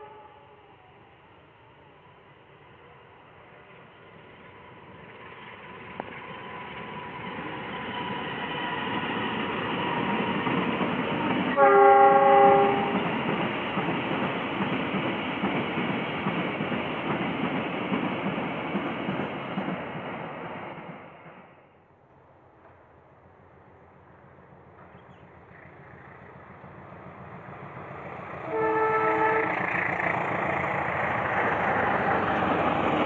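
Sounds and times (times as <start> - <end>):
multi-tone train horn blast: 0.0 - 0.9, 11.5 - 13.1, 28.4 - 29.9
train passing with rumble: 0.0 - 33.0.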